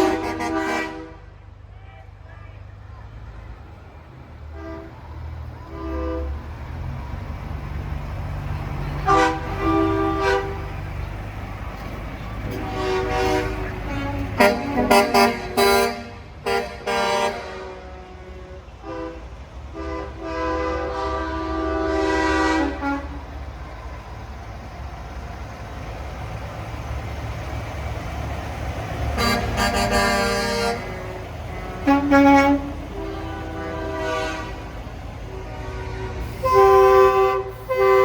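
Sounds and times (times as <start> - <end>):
truck air horn blasts: 0.0 - 1.4, 4.5 - 6.6, 9.0 - 10.8, 12.4 - 23.4, 29.0 - 38.0
diesel engines rumbling: 0.0 - 38.0.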